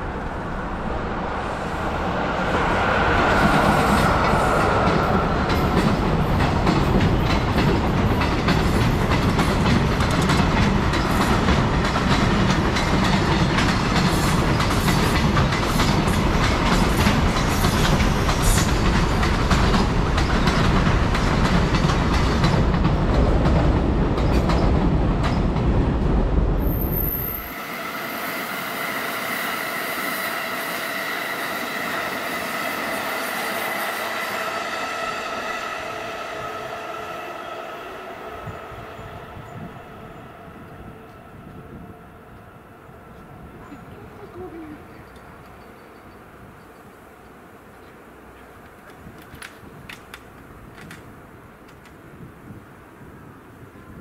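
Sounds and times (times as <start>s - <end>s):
train wheels clattering over joints: 3.8s - 25.7s.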